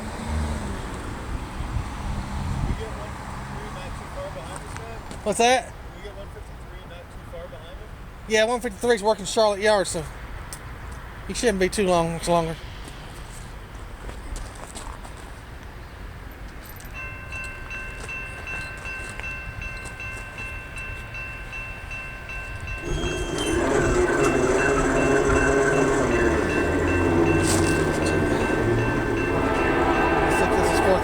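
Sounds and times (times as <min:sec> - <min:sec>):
crossing bell ringing: 0:16.7 - 0:31.0
diesel locomotive engine: 0:16.8 - 0:31.0
train rumble: 0:17.3 - 0:31.0
train horn: 0:22.8 - 0:31.0.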